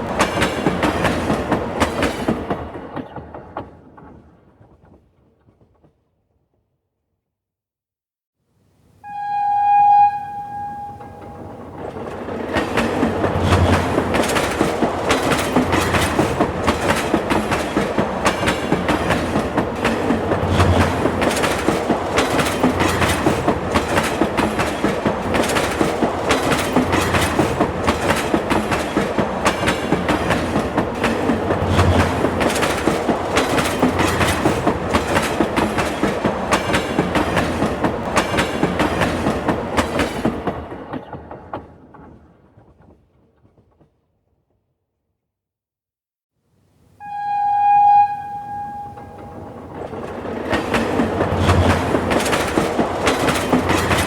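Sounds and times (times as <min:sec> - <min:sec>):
train wheels clicking on rails: 0:00.0 - 0:06.0, 0:11.1 - 0:44.1, 0:48.7 - 0:54.0.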